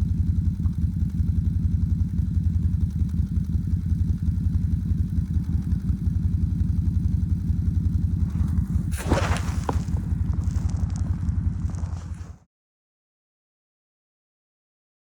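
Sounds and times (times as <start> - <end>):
vehicle engine low throb: 0.0 - 12.5
rushing scraping noise: 8.2 - 12.4.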